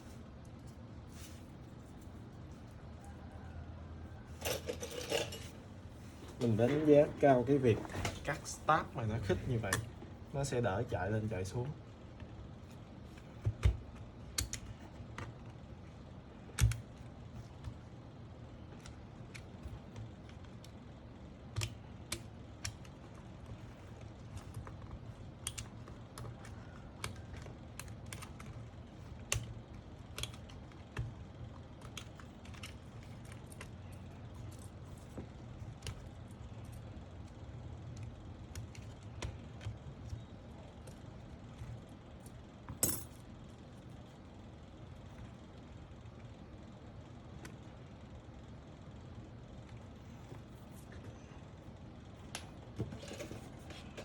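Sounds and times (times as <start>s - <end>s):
plastic keyboard parts clicking: 21.5s - 41.0s.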